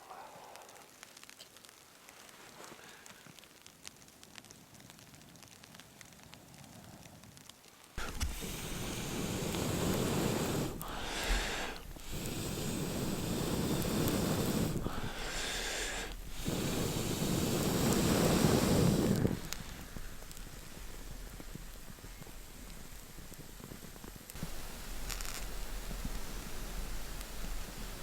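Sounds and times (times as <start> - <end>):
person blowing on embers: 4.4 - 28.0
breath intake: 8.0 - 20.2.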